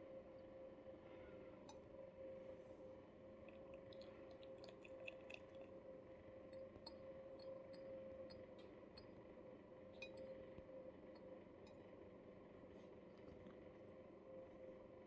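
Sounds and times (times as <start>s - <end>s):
cat chewing: 3.5s - 5.8s.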